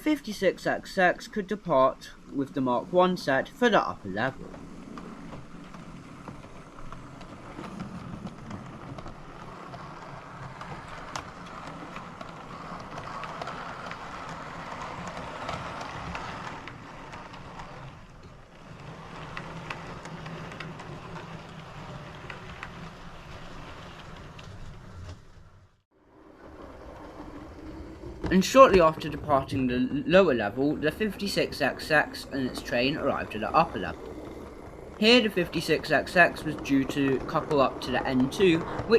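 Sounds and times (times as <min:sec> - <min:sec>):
wheels clicking over rail joints: 0:00.0 - 0:38.9
model train motor whir: 0:03.1 - 0:25.5.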